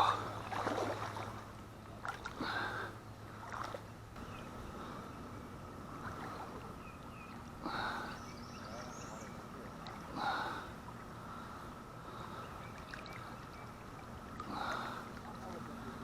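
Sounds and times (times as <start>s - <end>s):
river current running: 0.0s - 16.0s
water swishes: 0.0s - 16.0s.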